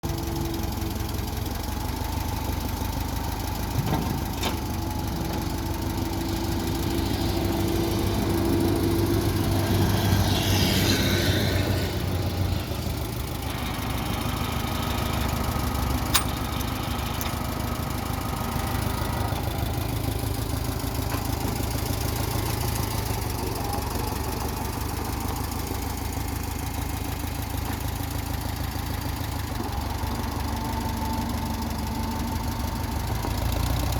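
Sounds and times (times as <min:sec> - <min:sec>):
tractor engine idling: 0:00.0 - 0:33.9
sharp click: 0:16.1 - 0:17.3.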